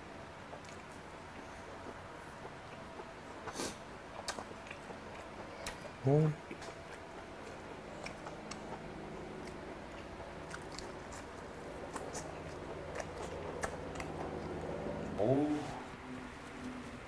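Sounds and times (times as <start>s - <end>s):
faint low hum: 0.0s - 17.0s
man chewing with mouth smacks: 0.5s - 15.6s.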